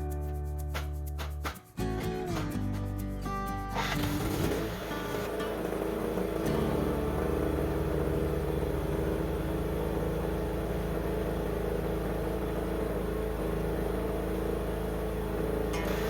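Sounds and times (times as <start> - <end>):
riding mower engine running: 3.8 - 16.0.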